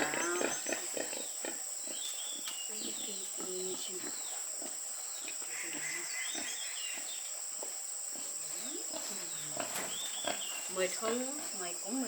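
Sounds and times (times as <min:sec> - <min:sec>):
bird chirps: 0:00.0 - 0:04.4, 0:08.2 - 0:11.2.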